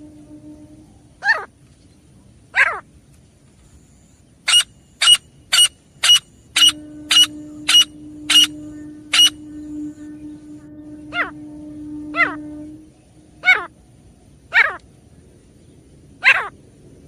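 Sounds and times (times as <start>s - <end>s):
francolin falling calls: 4.5s - 12.7s.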